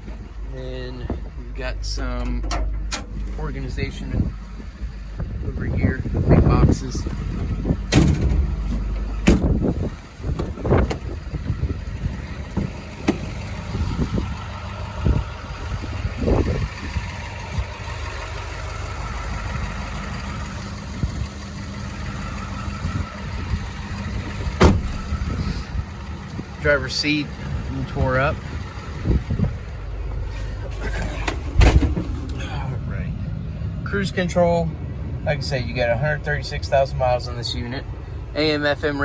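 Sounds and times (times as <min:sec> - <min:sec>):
diesel truck engine idling: 0:00.0 - 0:39.0
sharp clunks and knocks: 0:07.3 - 0:09.7, 0:24.6 - 0:25.0, 0:31.0 - 0:32.4.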